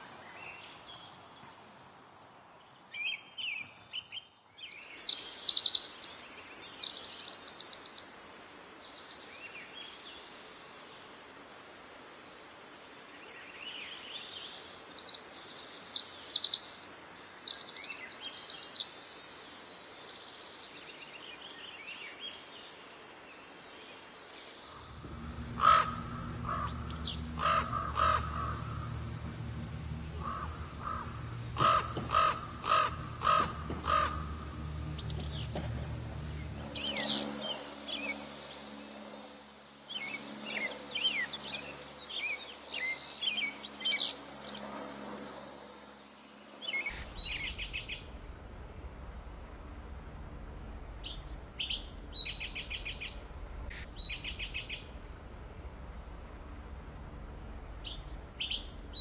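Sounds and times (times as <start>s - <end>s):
small birds chirping: 24.5s - 38.6s, 46.6s - 56.8s, 57.6s - 59.0s
crow cawing: 24.7s - 34.7s
songbird trilling: 24.7s - 37.2s, 46.7s - 48.2s, 51.0s - 55.0s, 57.8s - 59.0s
low rumble: 24.7s - 37.5s, 46.9s - 59.0s.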